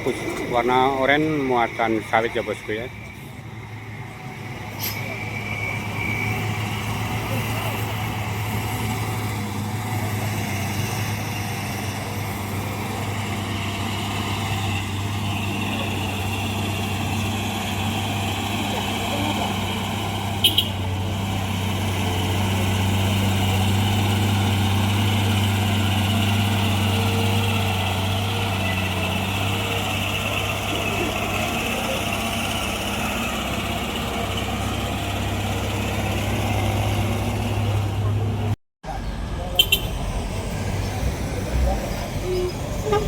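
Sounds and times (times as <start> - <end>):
truck engine droning: 0.0 - 43.0.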